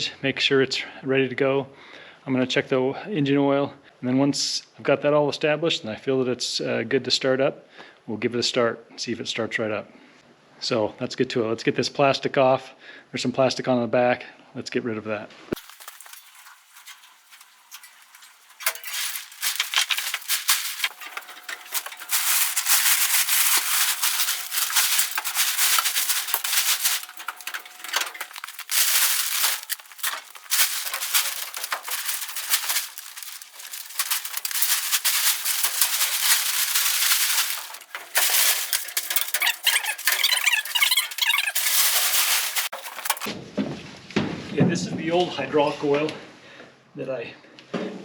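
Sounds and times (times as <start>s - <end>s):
plastic sheeting crinkling: 15.6s - 43.3s.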